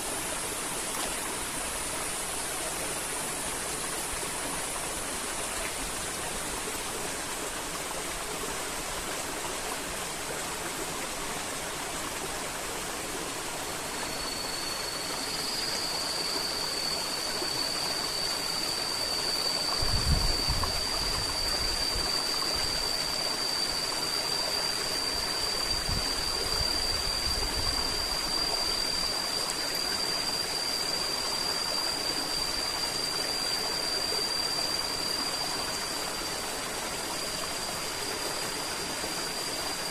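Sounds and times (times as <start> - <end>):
steady high-pitched tone: 0.0 - 39.9.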